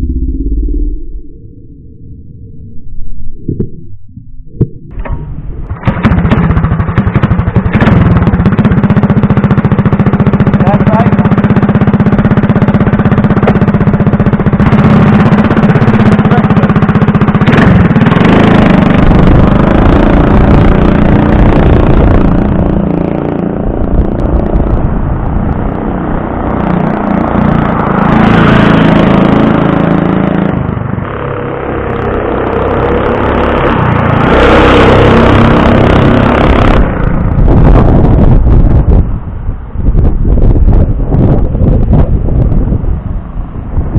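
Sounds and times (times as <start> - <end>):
mini bike engine revving: 5.0 - 38.7.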